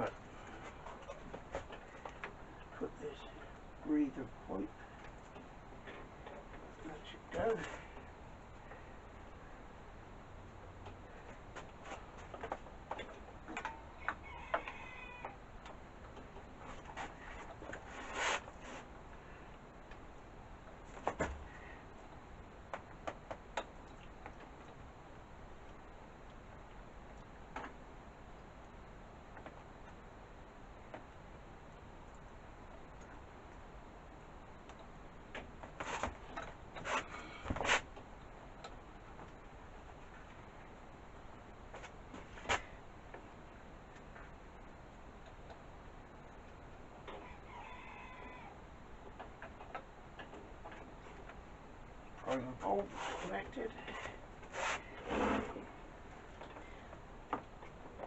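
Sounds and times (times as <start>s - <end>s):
faint steady background: 0.0s - 58.0s
short metal scrape: 54.5s - 55.6s.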